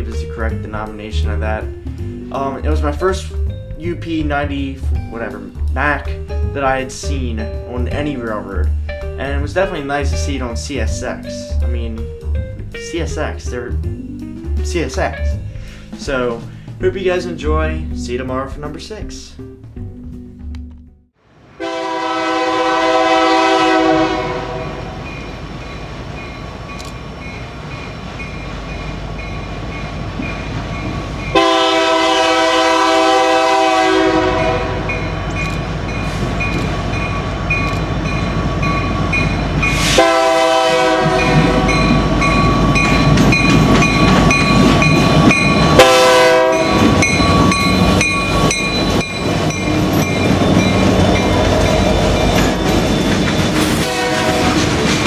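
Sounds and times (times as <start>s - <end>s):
locomotive rumble: 0.0s - 20.4s, 21.6s - 55.0s
train air horn blasts: 21.6s - 25.0s, 31.3s - 35.2s, 39.7s - 42.0s, 45.7s - 47.1s, 53.6s - 54.7s
train cars clickety-clack on rails: 23.0s - 55.0s.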